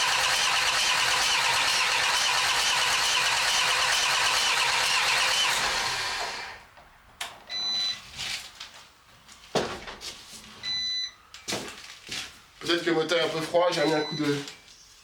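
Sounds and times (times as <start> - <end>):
engine cranking on starter motor: 0.0 - 6.6.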